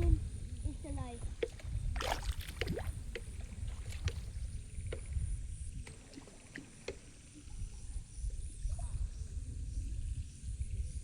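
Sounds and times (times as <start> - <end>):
wind on microphone: 0.0 - 6.0, 7.3 - 11.0
shallow water sloshing: 1.2 - 5.1
small splashes and clicks: 1.4 - 5.1.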